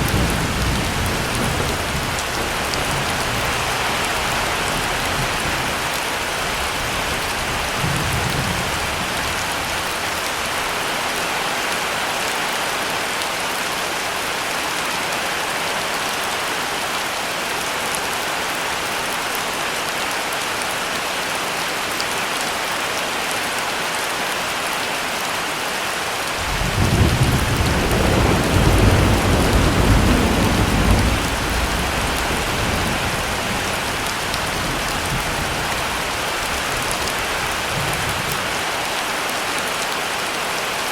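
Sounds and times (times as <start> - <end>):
thunder rumbling: 0.0 - 10.2, 26.4 - 38.6
heavy rain: 0.0 - 40.9.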